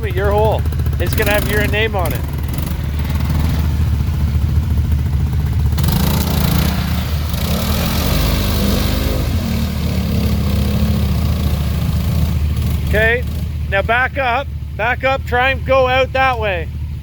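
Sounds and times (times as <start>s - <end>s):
tyres rushing through mud: 0.0s - 16.7s
off-road vehicle engine revving: 0.0s - 17.0s.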